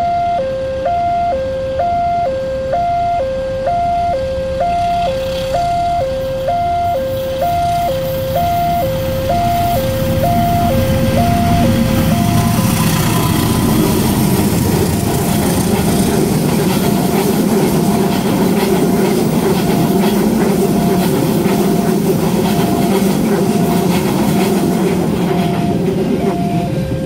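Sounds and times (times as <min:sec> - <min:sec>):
level crossing warning alarm: 0:00.0 - 0:27.0
train passing at speed: 0:01.7 - 0:27.0
wheels clacking over rail joints: 0:09.0 - 0:26.6.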